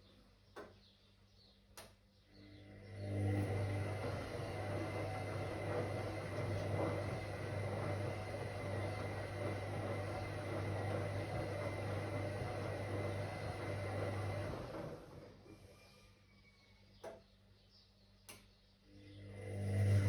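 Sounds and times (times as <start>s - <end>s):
washing machine running: 2.4s - 17.2s, 18.9s - 20.0s.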